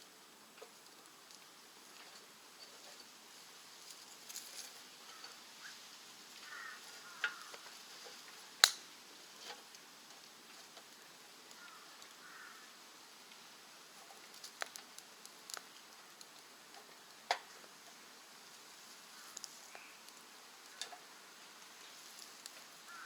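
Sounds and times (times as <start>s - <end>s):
wood fire crackling: 6.0s - 23.0s.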